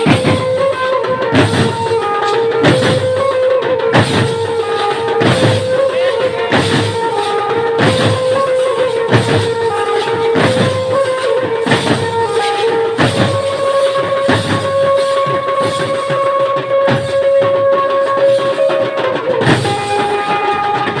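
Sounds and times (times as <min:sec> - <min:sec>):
heavy drum beat: 0:00.0 - 0:21.0.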